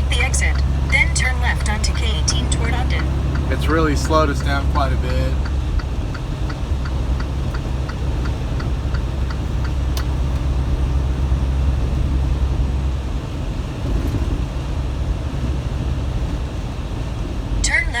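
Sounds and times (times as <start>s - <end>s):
turn signal ticking: 0.0s - 12.5s
diesel engine and road rumble: 0.0s - 18.0s.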